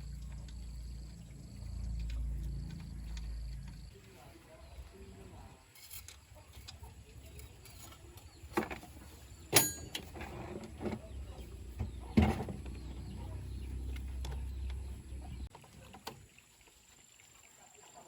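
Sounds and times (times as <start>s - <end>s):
low steady hum: 0.0s - 5.6s
metallic clanks and knocks: 7.3s - 13.0s.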